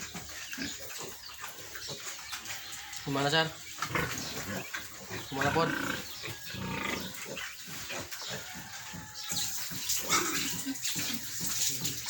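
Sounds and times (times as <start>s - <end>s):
piglets grunting and squealing: 3.0s - 12.0s.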